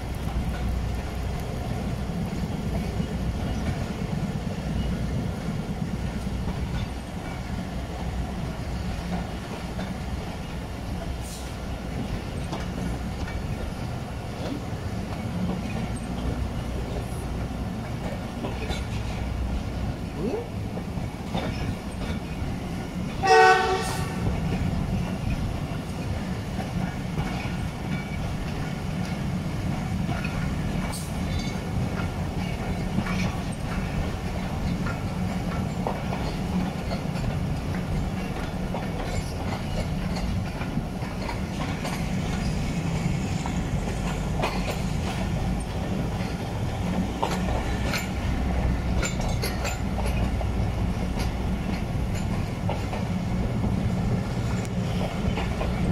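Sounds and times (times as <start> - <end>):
clacks over rail joints: 0.0 - 55.9
train wheels rumbling: 0.0 - 55.9
train horn blast: 23.2 - 24.3.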